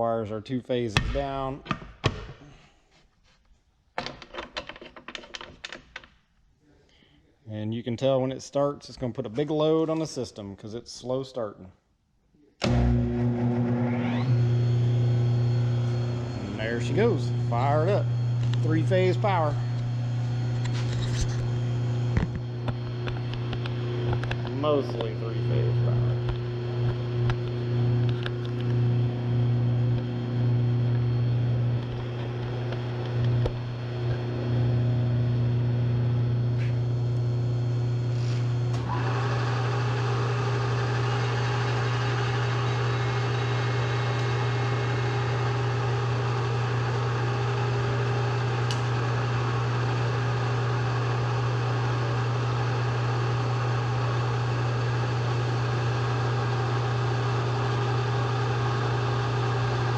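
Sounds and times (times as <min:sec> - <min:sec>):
rotary phase converter hum: 0:12.6 - 0:59.9
high-pitched whine: 0:12.7 - 0:23.2.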